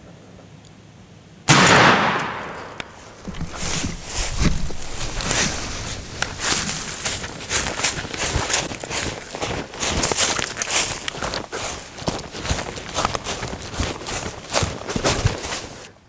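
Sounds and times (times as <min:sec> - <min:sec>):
shotgun blast with echo: 0:01.5 - 0:03.3
crunching in dry leaves: 0:02.0 - 0:16.0.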